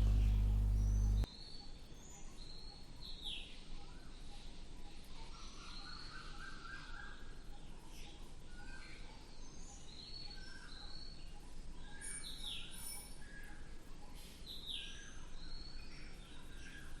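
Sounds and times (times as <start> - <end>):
birds whistling and chirping: 0.0 - 1.3
steady background hiss: 0.0 - 1.3.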